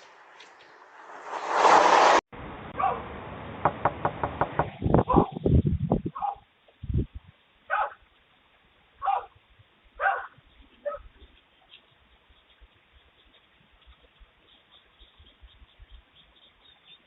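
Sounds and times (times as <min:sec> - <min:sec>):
dog barking: 0:02.8 - 0:03.0, 0:06.2 - 0:06.4, 0:07.7 - 0:08.0, 0:09.0 - 0:09.4, 0:10.0 - 0:11.1.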